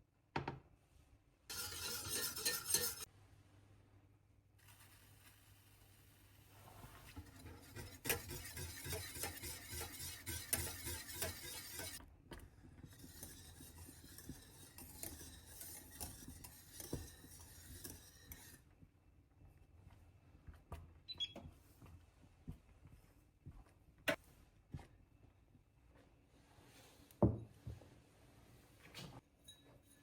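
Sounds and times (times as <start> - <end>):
dishes and cutlery clinking: 1.5 - 3.1, 29.4 - 30.0.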